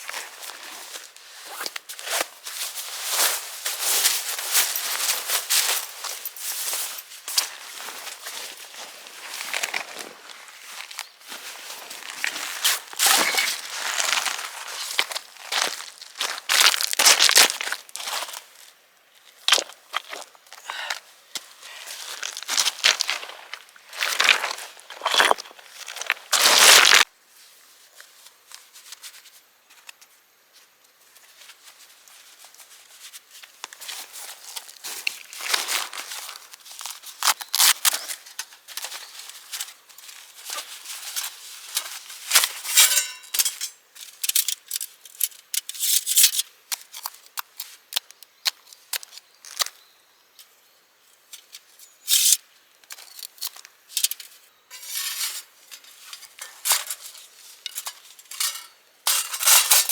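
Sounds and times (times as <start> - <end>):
handling scrapes and rustles: 0.0 - 18.5, 31.1 - 48.0, 51.4 - 59.9.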